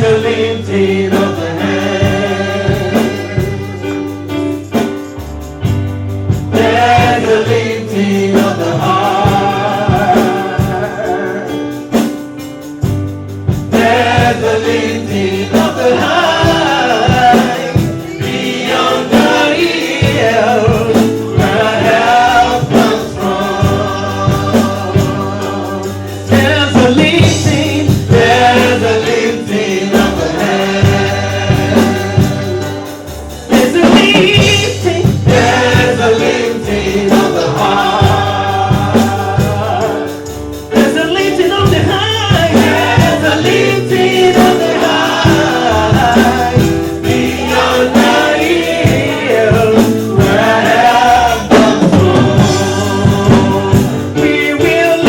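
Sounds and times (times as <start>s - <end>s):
drum beat: 0.0s - 55.0s
gospel choir singing: 0.0s - 55.0s
sustained bass notes: 12.8s - 55.0s.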